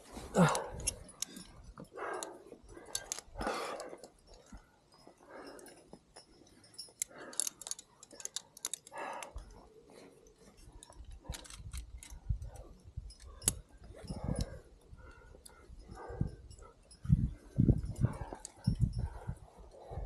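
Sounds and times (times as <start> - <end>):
wind buffeting microphone: 11.0 - 20.0.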